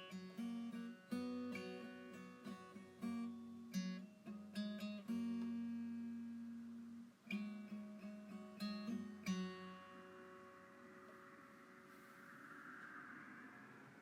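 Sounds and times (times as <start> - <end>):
acoustic guitar playing: 0.0 - 14.0.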